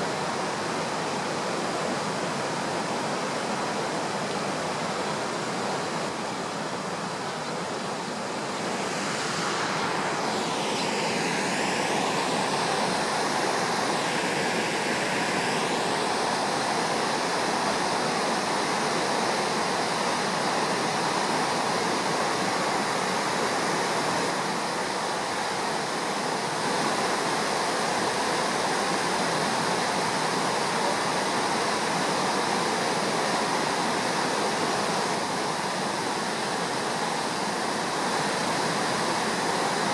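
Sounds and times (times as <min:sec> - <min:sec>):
fast river rushing: 0:00.0 - 0:39.9
sweeping whoosh: 0:08.3 - 0:12.7.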